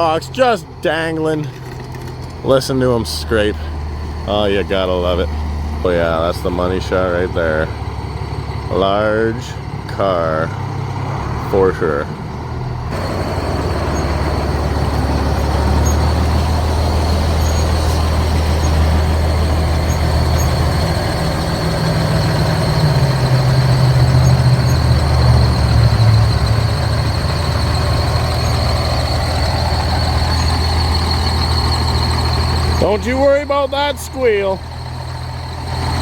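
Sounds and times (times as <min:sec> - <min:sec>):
diesel truck engine running: 0:00.0 - 0:36.0
steady high squeal: 0:12.9 - 0:36.0.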